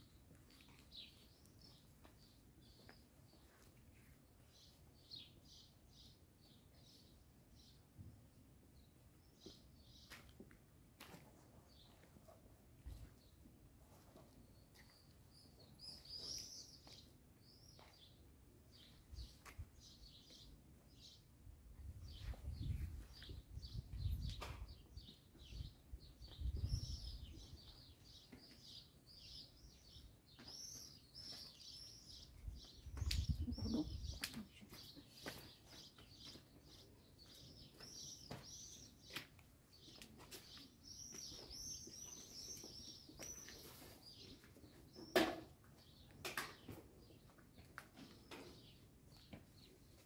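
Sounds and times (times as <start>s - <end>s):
small birds chirping: 0.0s - 8.1s, 8.8s - 10.5s, 11.5s - 50.0s.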